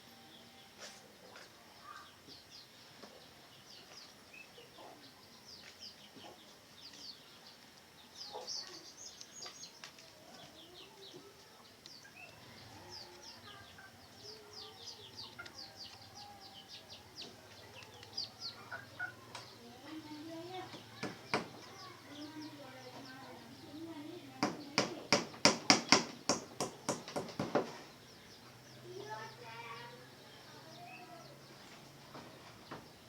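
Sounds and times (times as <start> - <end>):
chicken clucking softly: 10.3 - 19.5.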